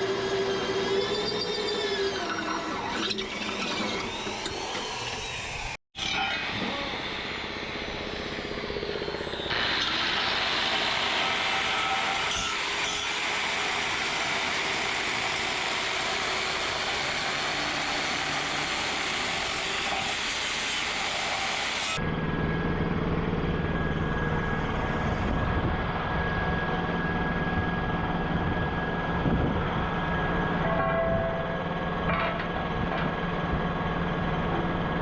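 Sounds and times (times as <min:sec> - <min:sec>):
power tool hissing: 0:06.4 - 0:22.0.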